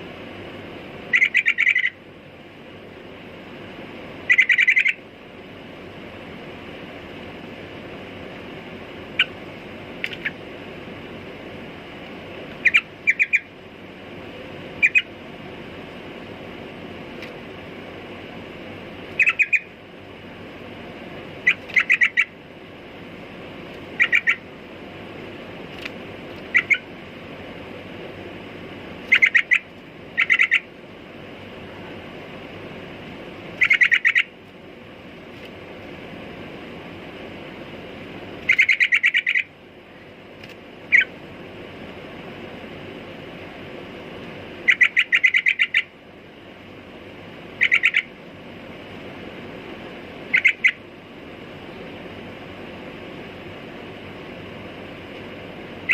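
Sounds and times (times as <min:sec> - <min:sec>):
steady background noise: 0:00.0 - 0:55.9
bird chirping: 0:01.1 - 0:02.0, 0:04.3 - 0:05.0, 0:12.6 - 0:13.5, 0:14.8 - 0:15.1, 0:19.2 - 0:19.7, 0:21.4 - 0:22.4, 0:24.0 - 0:24.4, 0:26.4 - 0:26.9, 0:29.1 - 0:30.7, 0:33.6 - 0:34.3, 0:38.4 - 0:39.5, 0:44.6 - 0:45.9, 0:47.6 - 0:48.1, 0:50.3 - 0:50.8.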